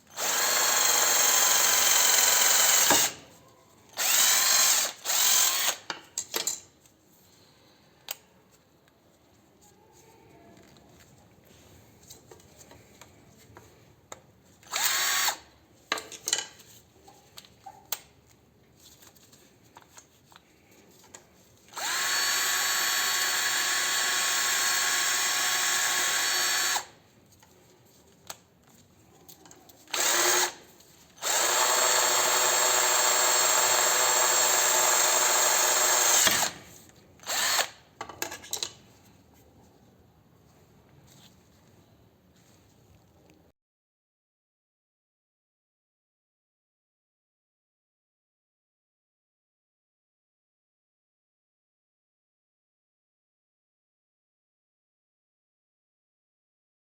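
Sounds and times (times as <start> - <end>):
cordless drill motor whining: 0.2 - 3.2, 4.0 - 5.8, 14.7 - 15.4, 21.7 - 26.9, 29.9 - 30.6, 31.2 - 36.6, 37.2 - 37.8.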